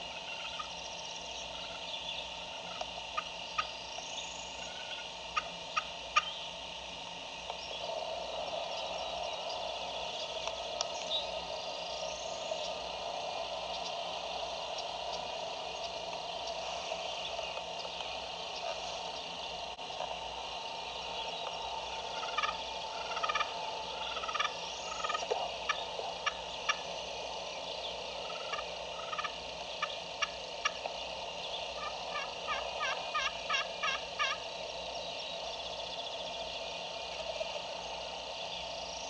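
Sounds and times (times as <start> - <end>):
steady background hiss: 0.0 - 39.0
turkey clucks: 0.2 - 0.8, 2.4 - 3.8, 4.6 - 6.3, 21.9 - 26.9, 28.2 - 31.0, 31.7 - 34.5
turkey yelping: 22.2 - 23.5, 31.8 - 34.4.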